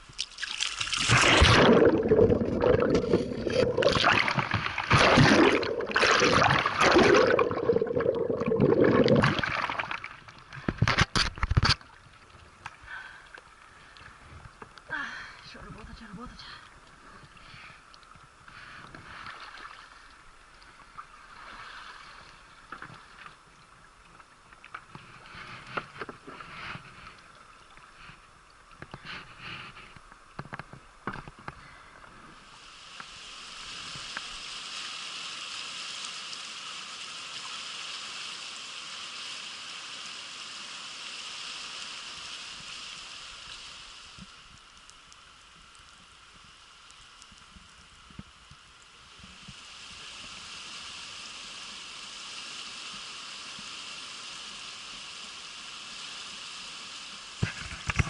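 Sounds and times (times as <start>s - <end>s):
river water splashing: 0.1s - 13.8s
rushing hiss of water: 31.6s - 58.0s.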